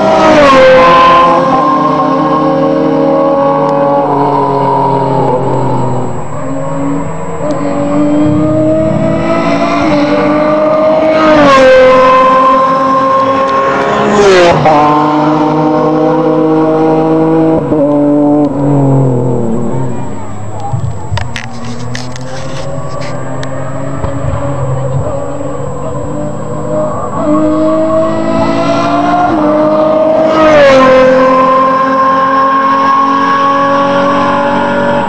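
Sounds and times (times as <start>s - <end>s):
racing car engines at full throttle: 0.0s - 35.0s
racing car passing by: 0.0s - 35.0s.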